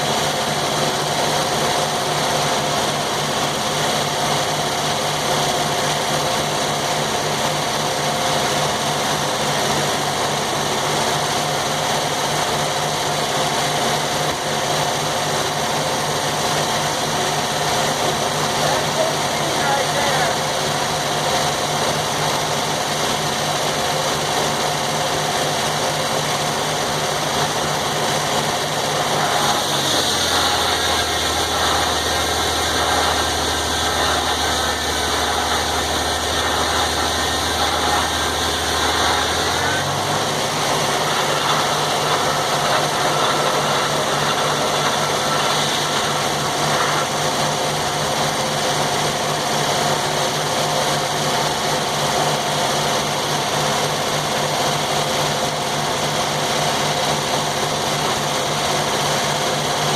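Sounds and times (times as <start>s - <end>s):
sawmill engine running: 0.0s - 59.9s
blade sawing through log: 15.5s - 59.9s.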